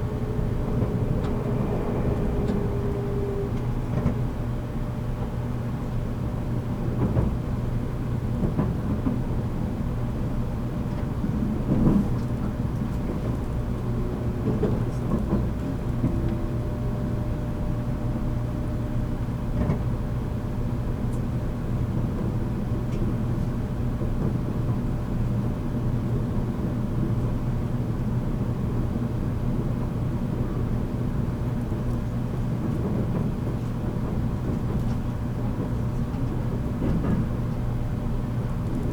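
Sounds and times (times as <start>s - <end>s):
constant low hum: 0.0s - 7.1s
train wheels and motors rumbling: 0.0s - 38.9s.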